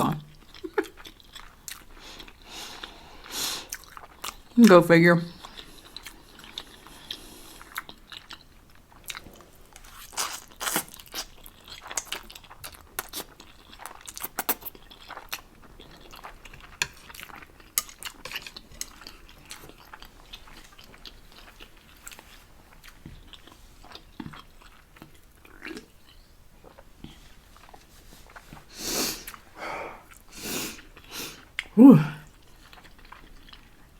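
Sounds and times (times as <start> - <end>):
chewing noodles: 0.2 - 4.6, 5.3 - 33.9.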